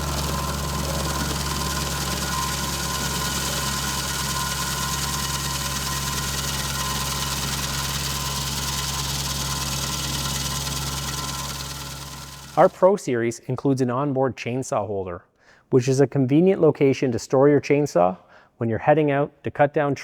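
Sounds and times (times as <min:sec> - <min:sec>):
engine running steadily: 0:00.0 - 0:12.8.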